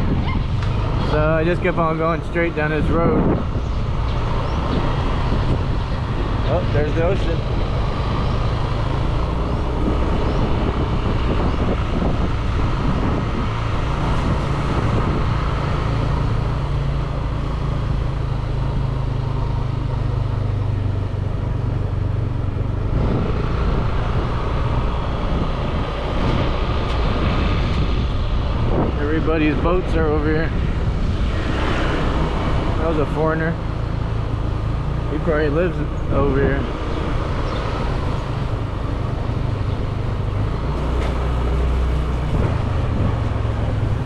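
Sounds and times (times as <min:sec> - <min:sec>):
wind rumbling on microphone: 0:00.0 - 0:44.0
motorbike engine running: 0:38.2 - 0:44.0.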